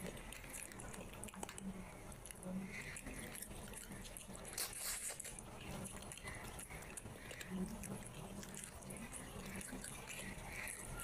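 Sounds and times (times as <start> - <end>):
person chewing food: 0.0 - 11.0
smacking mouth clicks: 4.2 - 8.7.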